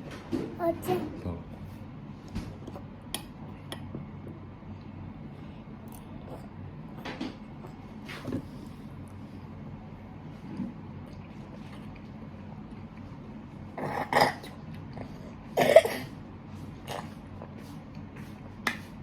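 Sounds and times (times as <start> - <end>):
person coughing: 15.6 - 16.1.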